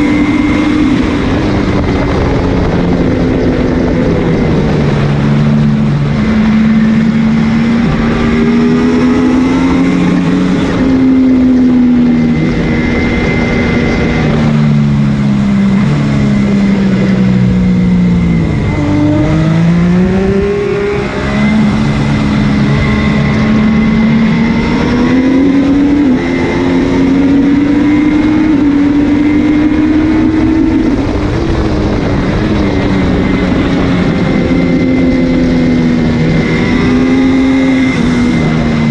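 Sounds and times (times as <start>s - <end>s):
motorcycle engine revving through gears: 0.0s - 38.9s
wind noise: 0.0s - 38.9s.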